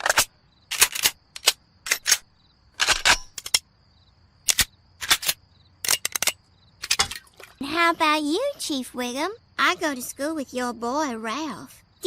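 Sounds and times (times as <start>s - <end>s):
sharp cracks: 0.0s - 3.7s, 4.4s - 7.2s.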